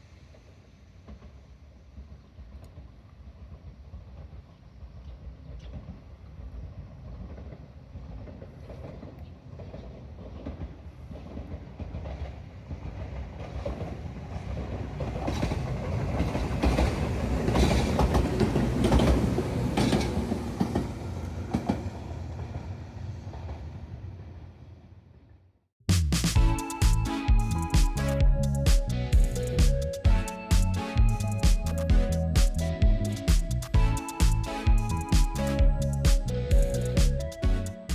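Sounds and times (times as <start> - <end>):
electric train passing: 6.0 - 25.1, 26.4 - 37.9
wheels clicking over rail joints: 7.1 - 21.9.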